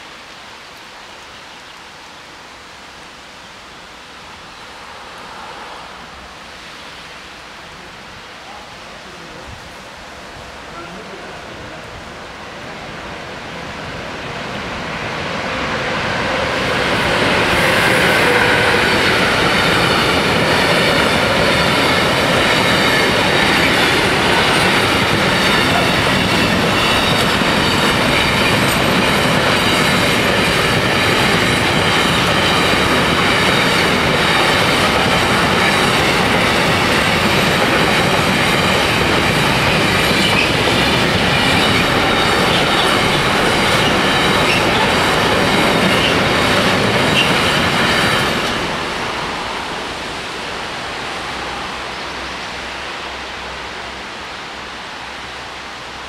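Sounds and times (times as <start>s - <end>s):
train wheels rushing on rails: 3.4s - 56.0s.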